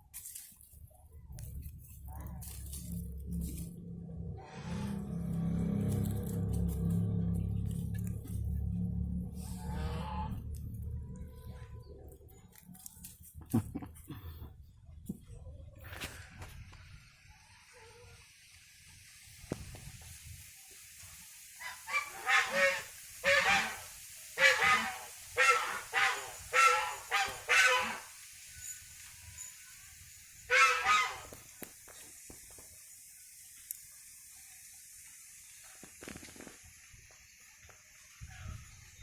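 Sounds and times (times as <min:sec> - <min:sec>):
bird honking: 0:24.4 - 0:28.1, 0:30.5 - 0:31.3.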